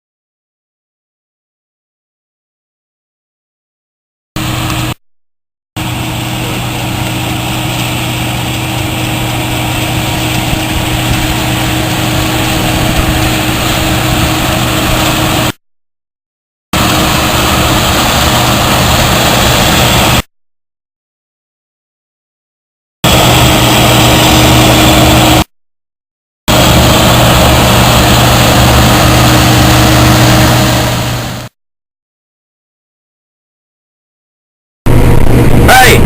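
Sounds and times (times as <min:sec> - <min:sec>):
combine harvester engine hum: 0:04.4 - 0:05.0, 0:05.8 - 0:15.6, 0:16.8 - 0:20.2, 0:23.1 - 0:25.5, 0:26.5 - 0:31.5, 0:34.9 - 0:36.0
broad rush of noise: 0:05.8 - 0:15.6, 0:16.8 - 0:20.2, 0:23.1 - 0:25.5, 0:26.5 - 0:31.5, 0:34.9 - 0:36.0.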